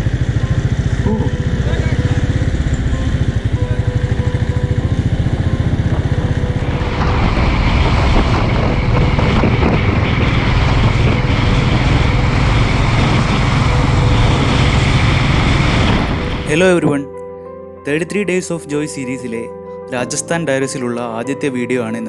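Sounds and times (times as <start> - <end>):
motorcycle engine running: 0.0 - 16.6
wind rushing over microphone: 0.0 - 16.6.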